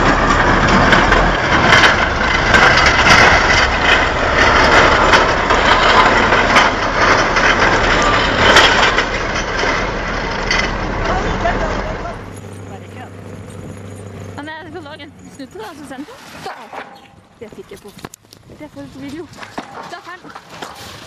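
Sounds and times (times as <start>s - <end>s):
heavy truck engine running: 0.0s - 16.2s
sharp knocks and clanks: 0.0s - 21.0s.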